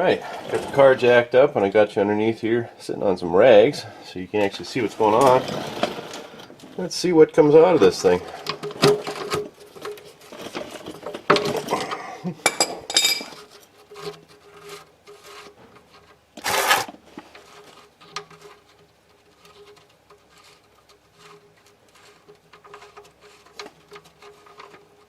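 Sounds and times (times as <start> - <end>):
wrench clinking and scraping metal: 4.5 - 6.7, 7.8 - 15.6.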